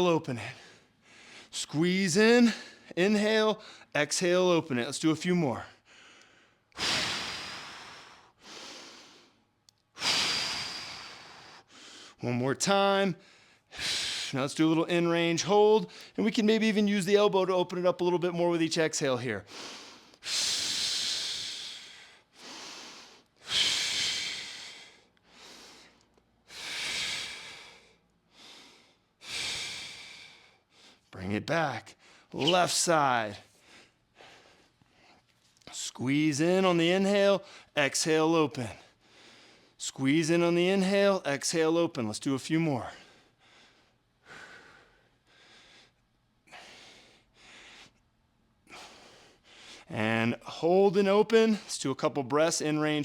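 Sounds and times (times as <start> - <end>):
person breathing slowly: 0.4 - 1.6, 5.8 - 9.4, 10.0 - 12.2, 19.4 - 31.2, 42.9 - 48.0.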